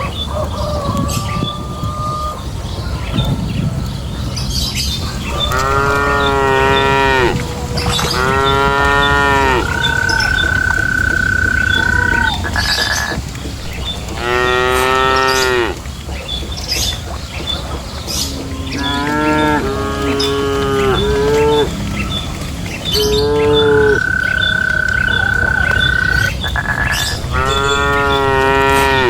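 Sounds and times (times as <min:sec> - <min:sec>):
constant low noise: 0:00.0 - 0:29.0
cattle mooing: 0:05.3 - 0:13.1, 0:13.7 - 0:15.8, 0:18.4 - 0:22.0, 0:22.9 - 0:29.0.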